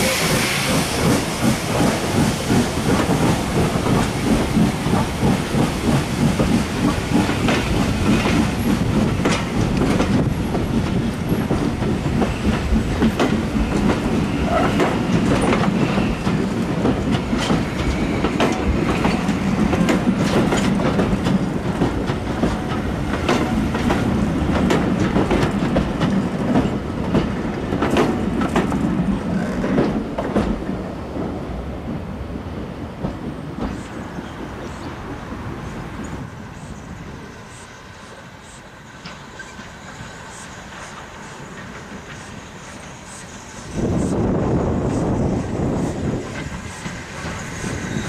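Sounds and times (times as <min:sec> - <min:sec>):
railway coaches rumbling past: 0:00.0 - 0:48.0
wheels clicking over rail joints: 0:01.4 - 0:31.3.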